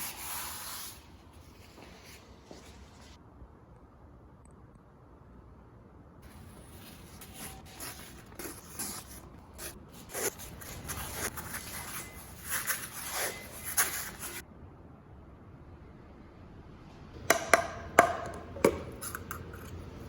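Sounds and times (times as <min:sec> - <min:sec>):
scraping and rubbing: 0:06.2 - 0:14.4, 0:18.0 - 0:20.0.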